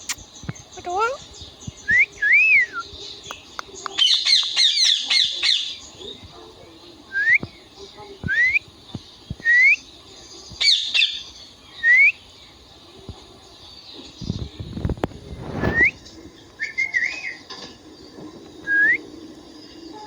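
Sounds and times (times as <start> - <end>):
parrot rising whistles: 15.6 - 16.0, 18.6 - 19.0.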